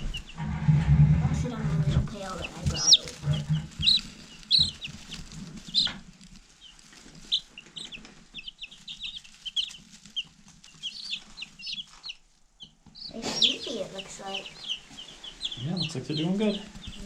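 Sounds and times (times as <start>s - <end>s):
low rustling and knocking: 0.0s - 12.1s
chicks peeping: 0.0s - 17.0s.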